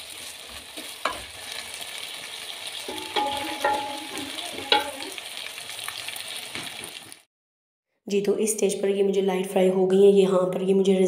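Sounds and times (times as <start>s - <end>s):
food sizzling in oil: 0.0s - 7.3s
wooden spatula knocking pan: 2.9s - 5.1s.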